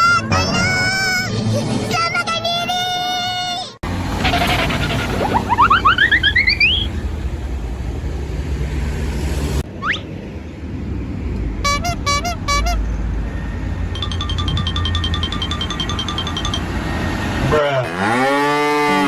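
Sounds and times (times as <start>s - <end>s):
low engine rumble: 3.8s - 17.6s
vehicle horns: 3.9s - 7.6s, 11.6s - 13.8s
alarm-like horn pattern: 4.1s - 7.5s, 11.6s - 17.6s.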